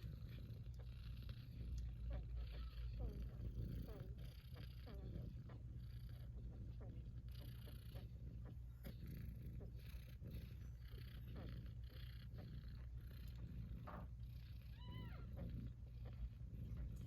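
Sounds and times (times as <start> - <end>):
cats purring: 0.0 - 17.0
kitten meow: 14.7 - 15.4.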